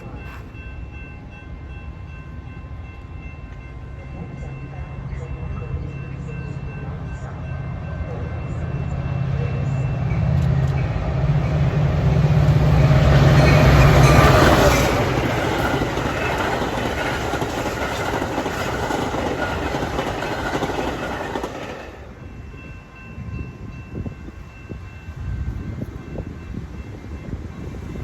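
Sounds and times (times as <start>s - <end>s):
train cars rumbling on rails: 0.0s - 28.0s
locomotive engine droning: 2.2s - 22.7s.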